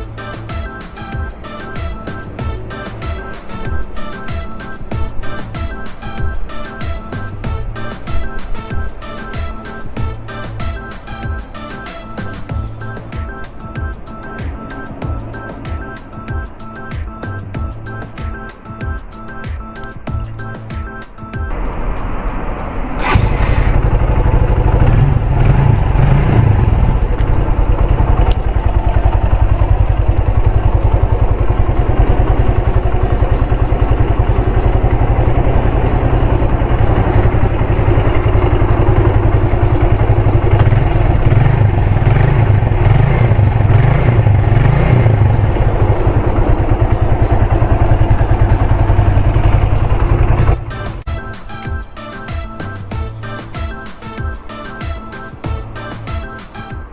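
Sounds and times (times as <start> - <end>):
motorcycle engine running: 0.0 - 11.4, 21.5 - 51.2.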